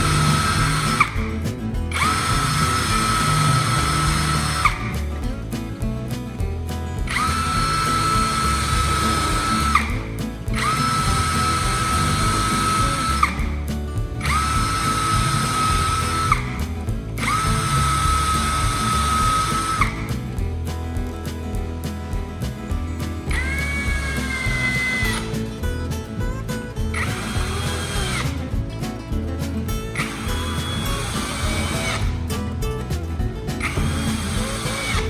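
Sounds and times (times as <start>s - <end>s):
drill clicking: 0.0s - 5.0s, 7.0s - 13.6s, 14.2s - 20.0s, 23.3s - 25.6s, 26.9s - 28.4s, 29.9s - 32.2s, 33.6s - 35.0s
electric drill whining: 0.0s - 5.0s, 7.1s - 13.6s, 14.2s - 16.6s, 17.2s - 20.0s, 23.3s - 25.4s, 26.9s - 28.3s, 29.9s - 32.2s, 33.6s - 35.0s
background music: 0.0s - 35.0s.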